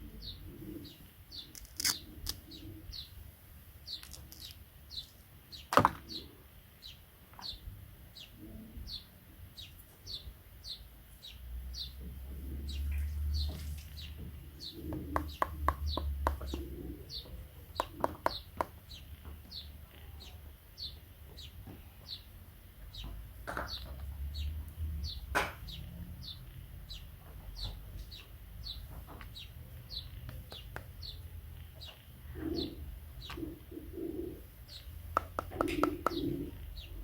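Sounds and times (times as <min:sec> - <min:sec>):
dove cooing: 0:00.0 - 0:01.1, 0:12.3 - 0:18.4, 0:32.2 - 0:37.0
small bird chirping: 0:00.1 - 0:03.2, 0:03.8 - 0:37.0.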